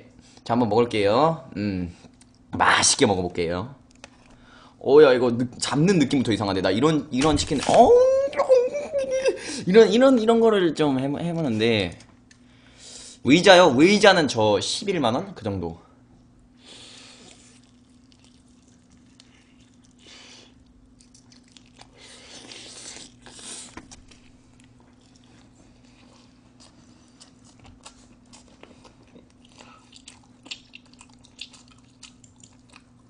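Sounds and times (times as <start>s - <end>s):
person chewing with wet mouth noises: 17.1s - 33.0s.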